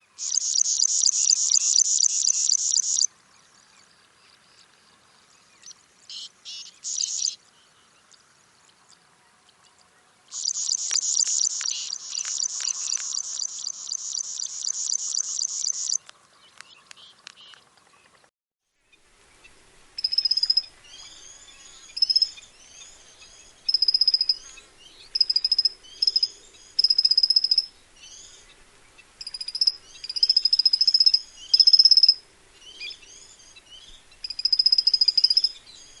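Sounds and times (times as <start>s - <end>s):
bird chirping phrases: 0.0s - 4.8s, 5.4s - 8.1s, 8.7s - 18.2s.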